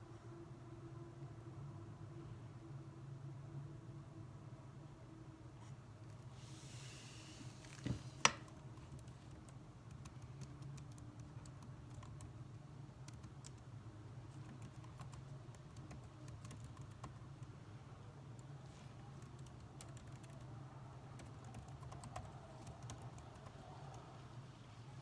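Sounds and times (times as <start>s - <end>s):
keyboard typing: 8.3s - 12.4s, 13.0s - 13.7s, 14.3s - 17.5s, 19.2s - 20.5s, 21.2s - 24.0s.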